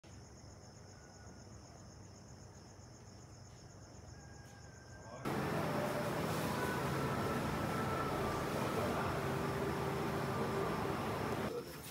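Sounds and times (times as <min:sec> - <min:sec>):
insects trilling: 0:00.1 - 0:11.8
loud noisy ambience: 0:05.3 - 0:11.5.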